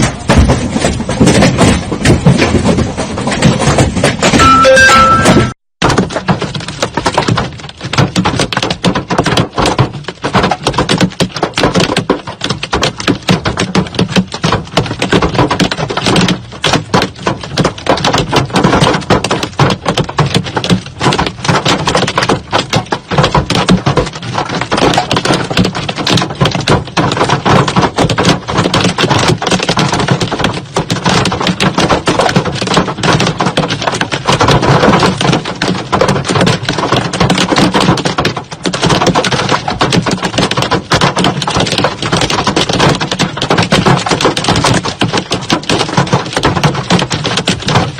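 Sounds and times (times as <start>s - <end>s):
hail clattering on hard surface: 0.0s - 47.9s.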